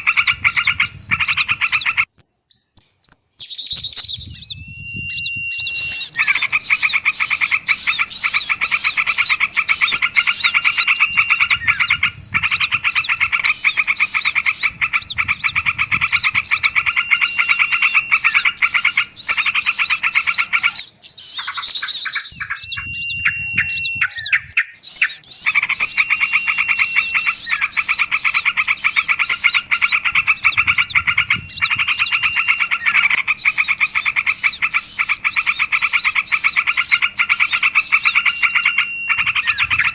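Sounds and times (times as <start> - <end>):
small songbirds chattering: 0.0 - 39.9
short held whistle: 3.8 - 6.5, 22.2 - 27.6.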